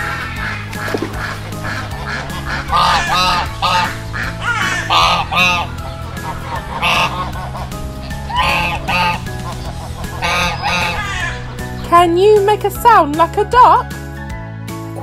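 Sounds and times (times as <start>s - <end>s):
ducks quacking: 0.0s - 11.8s
background music: 0.0s - 15.0s.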